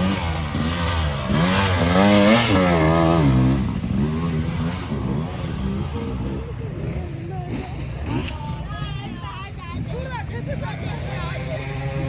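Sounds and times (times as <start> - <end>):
race vehicle engine revving: 0.0 - 8.4.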